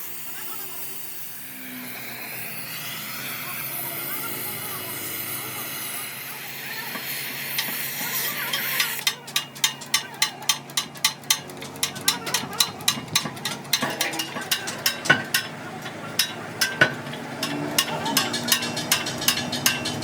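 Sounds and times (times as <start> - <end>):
hammer striking metal: 6.8 - 20.0.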